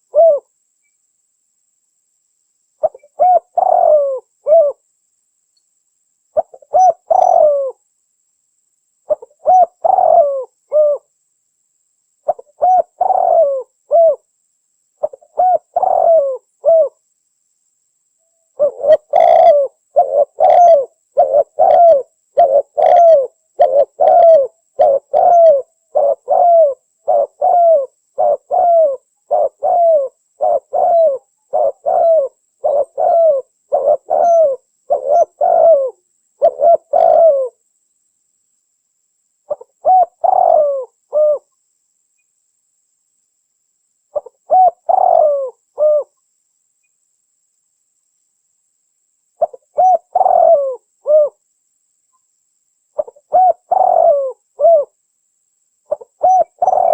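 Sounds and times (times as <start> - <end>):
dove cooing: 0.0 - 0.5, 2.8 - 4.8, 6.4 - 7.8, 9.1 - 11.1, 12.2 - 14.2, 15.0 - 17.0, 18.6 - 37.6, 39.5 - 41.5, 44.1 - 46.2, 49.4 - 51.4, 53.0 - 55.0, 55.9 - 56.9.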